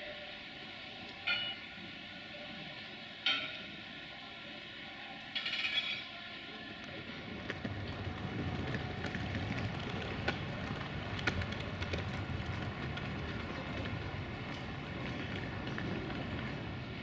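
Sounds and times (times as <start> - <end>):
train rumbling on track: 6.6 - 17.0.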